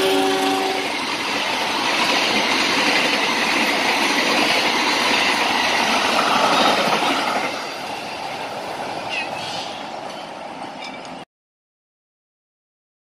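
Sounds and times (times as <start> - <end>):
passenger train rushing past: 0.0 - 11.2.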